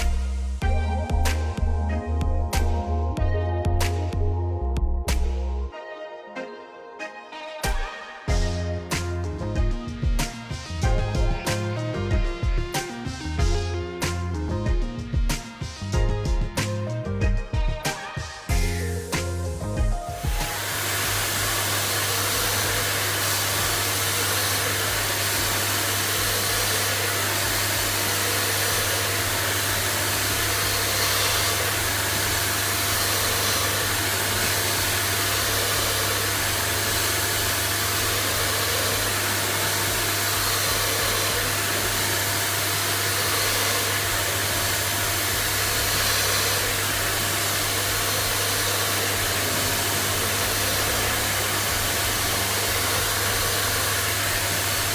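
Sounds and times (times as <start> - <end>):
motor-driven rushing with low hum: 18.5 - 54.9.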